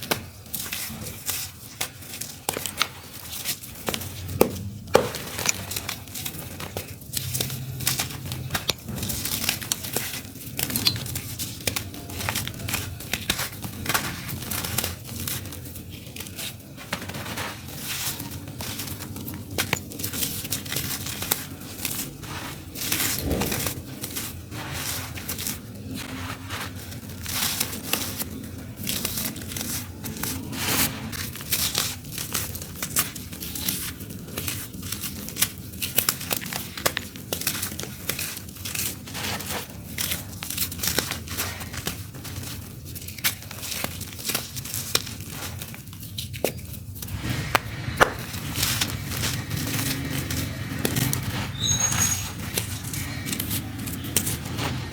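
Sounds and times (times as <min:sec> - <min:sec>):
dirt crumbling onto floor: 0:47.1 - 0:51.8.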